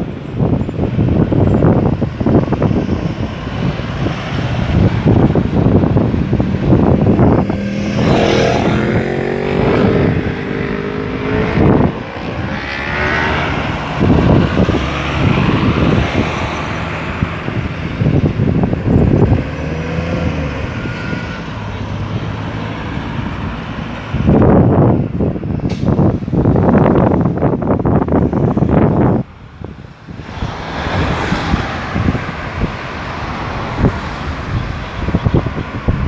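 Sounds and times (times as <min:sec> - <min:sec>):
vehicles passing: 0:00.0 - 0:36.0
wind buffeting microphone: 0:00.0 - 0:36.0
engine rising in pitch: 0:06.2 - 0:17.2.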